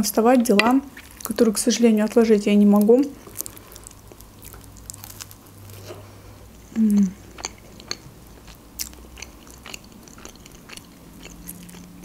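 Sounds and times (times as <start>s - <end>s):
person chewing: 2.8s - 12.0s
person humming mm: 6.7s - 7.2s.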